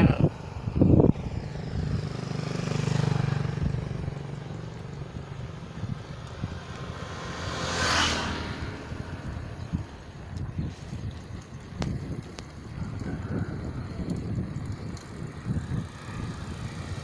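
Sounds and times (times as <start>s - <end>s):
small engine running: 12.6s - 17.0s.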